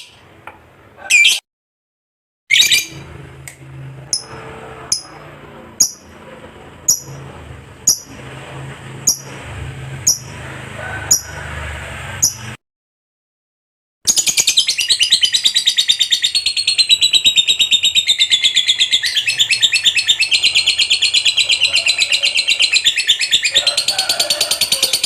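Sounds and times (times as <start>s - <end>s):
bird chirping: 2.5s - 3.1s, 4.1s - 6.2s, 6.8s - 8.2s, 9.0s - 9.4s, 10.0s - 10.4s, 14.1s - 25.0s
low hum: 2.8s - 12.6s
bird harsh call: 14.1s - 25.0s.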